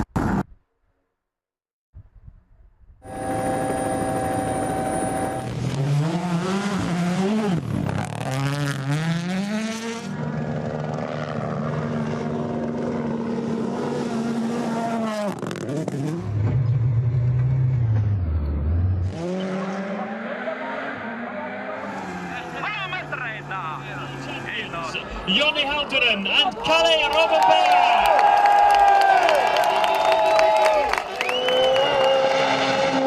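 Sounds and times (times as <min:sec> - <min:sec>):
rally car engine revving: 0:03.1 - 0:26.0, 0:31.4 - 0:33.0.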